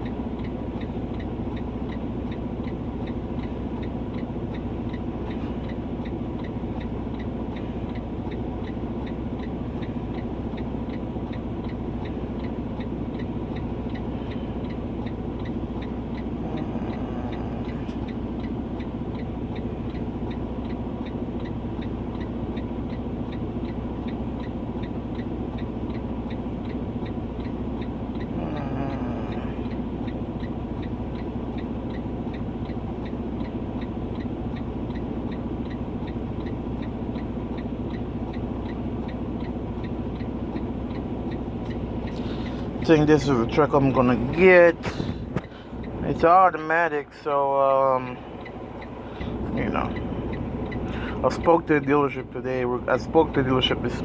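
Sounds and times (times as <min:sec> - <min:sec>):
fast even ticking: 0:05.6 - 0:54.0
machine hum: 0:15.8 - 0:18.3, 0:28.3 - 0:29.9.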